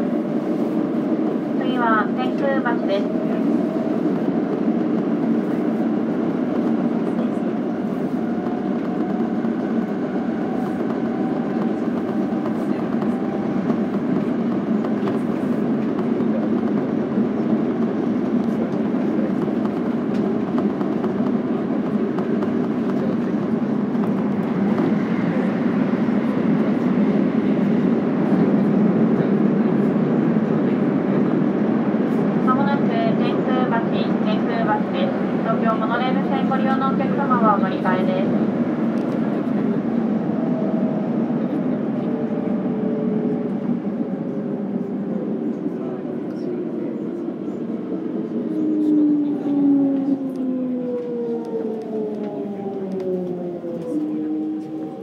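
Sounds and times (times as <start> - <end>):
train wheels on rails: 0.0 - 42.5.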